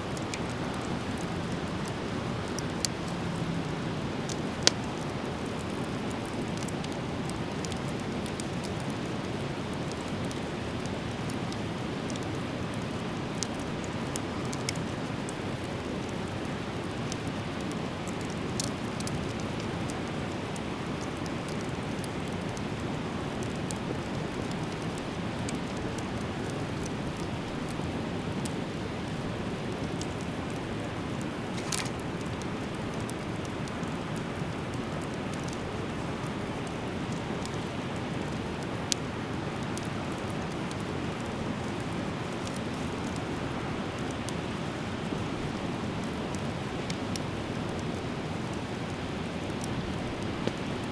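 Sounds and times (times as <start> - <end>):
fire hissing and crackling: 0.0 - 50.9
sharp pops from fire: 31.2 - 34.5, 48.8 - 50.9.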